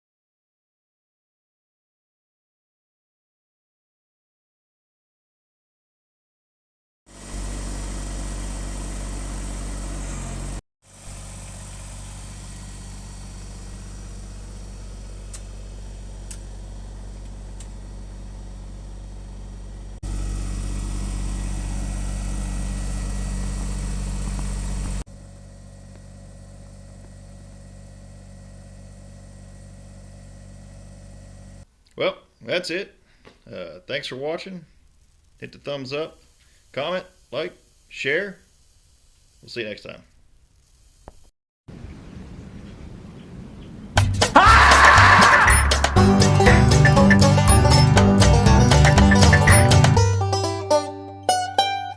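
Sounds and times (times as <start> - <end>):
tractor diesel engine running: 7.1 - 31.6, 44.0 - 51.7.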